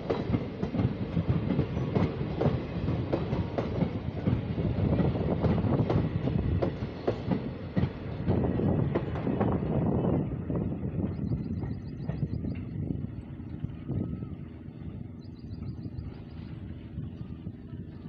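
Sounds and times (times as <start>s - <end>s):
steady train rumble: 0.0s - 18.0s.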